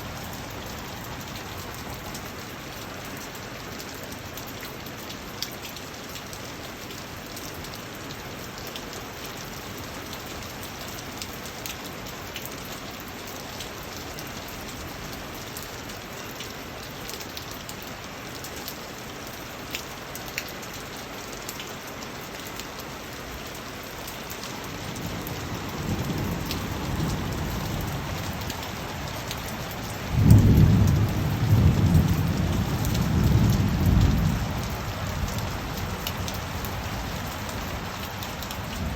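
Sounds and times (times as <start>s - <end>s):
steady rain falling: 0.0s - 38.9s
raindrops ticking: 15.1s - 38.9s
low roll of thunder: 24.9s - 36.3s.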